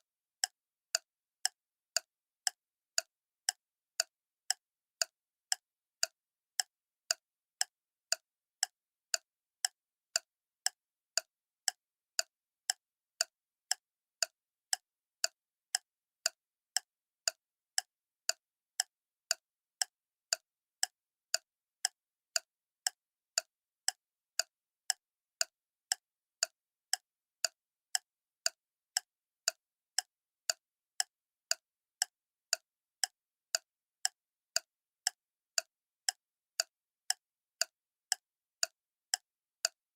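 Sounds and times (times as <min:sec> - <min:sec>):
clock ticking: 0:00.4 - 0:39.8.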